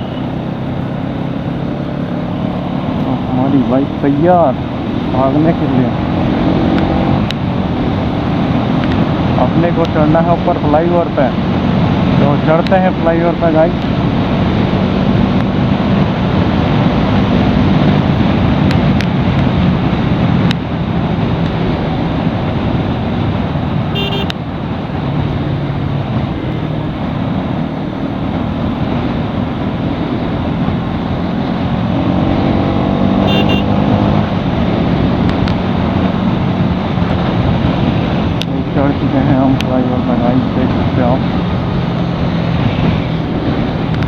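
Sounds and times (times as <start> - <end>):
road and wind noise: 0.0 - 44.0
motorcycle engine running: 19.5 - 31.6, 32.2 - 38.7
horns honking: 23.9 - 24.4, 33.2 - 33.9.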